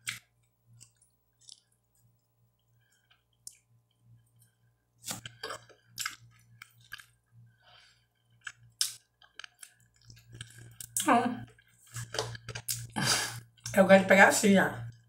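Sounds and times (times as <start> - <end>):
mouth clicks and crunches: 5.0 - 7.1, 8.4 - 13.0
chewing and gnawing chicken: 8.3 - 13.0.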